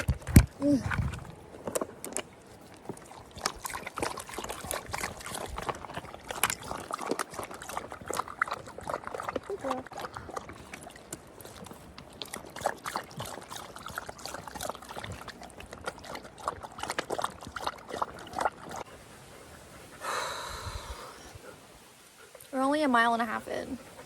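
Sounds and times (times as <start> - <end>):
dogs lapping water: 0.0 - 24.0.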